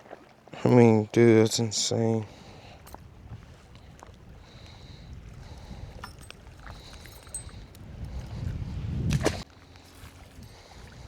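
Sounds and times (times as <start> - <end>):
wind buffeting microphone: 2.2 - 11.0.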